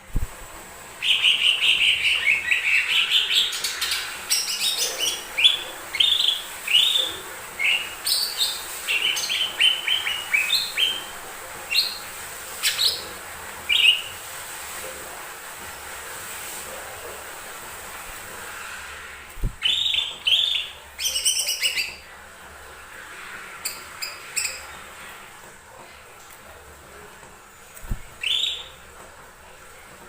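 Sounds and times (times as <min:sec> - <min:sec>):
bird chirping and whistling: 0:28.2 - 0:28.7.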